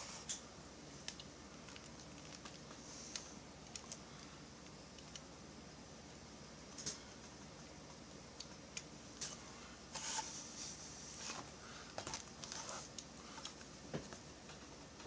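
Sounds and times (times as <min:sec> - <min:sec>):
rustling scrapes of parts handled: 0:09.2 - 0:13.5.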